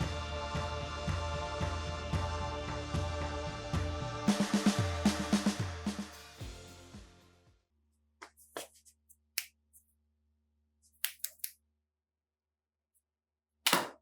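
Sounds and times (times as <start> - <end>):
music: 0.0 - 7.6.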